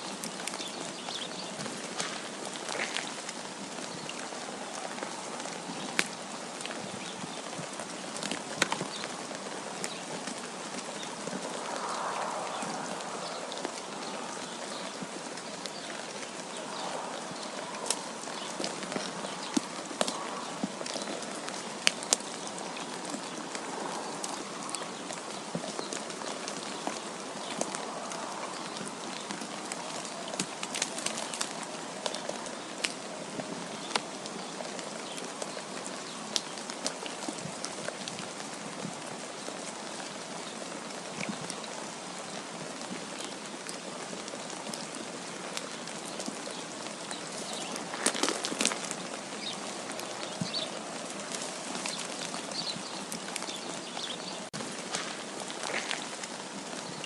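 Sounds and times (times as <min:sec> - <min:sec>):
wind hissing: 0:10.4 - 0:15.3.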